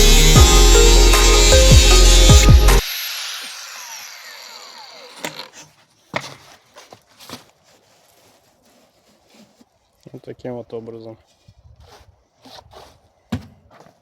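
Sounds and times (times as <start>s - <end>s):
power tool motor spinning down: 0.0s - 5.6s.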